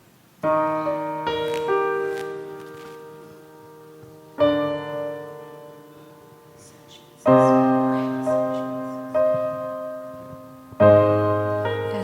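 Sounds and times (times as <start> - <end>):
piano playing slow chords: 0.0 - 12.0.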